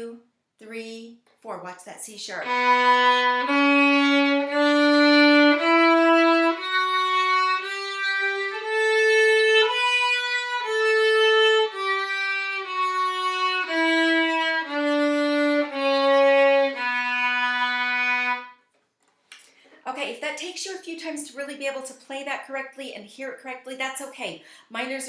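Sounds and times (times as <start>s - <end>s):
violin playing a scale: 2.4s - 18.6s.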